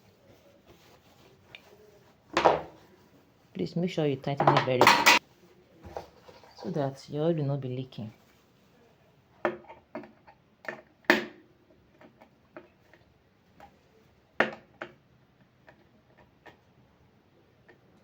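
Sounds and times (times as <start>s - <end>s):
hand tools clicking and tapping: 4.4s - 5.2s.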